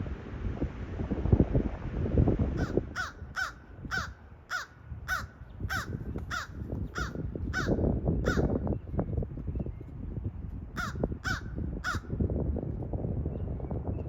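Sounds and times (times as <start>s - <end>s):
wind on microphone: 0.0s - 14.0s
bird calling harshly: 2.6s - 8.6s, 10.8s - 12.0s.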